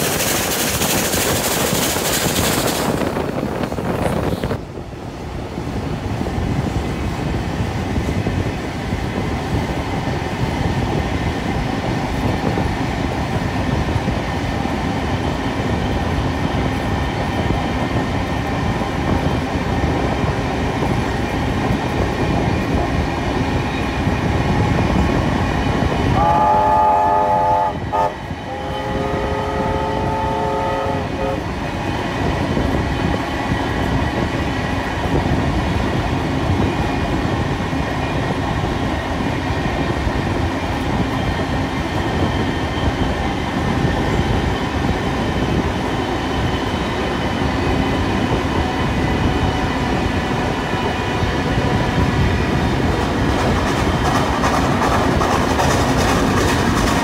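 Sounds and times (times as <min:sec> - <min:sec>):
train wheels rumbling on rails: 0:00.0 - 0:57.0
multi-note train whistle: 0:26.1 - 0:31.5.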